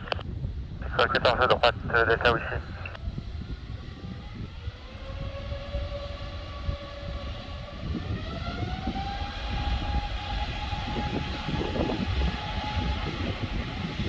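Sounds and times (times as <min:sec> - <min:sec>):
jet engines spooling up: 0:03.7 - 0:14.0.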